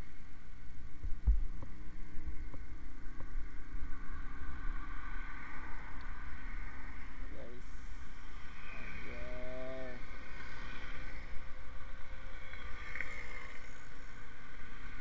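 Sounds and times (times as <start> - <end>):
higher hum: 0.0 - 10.1.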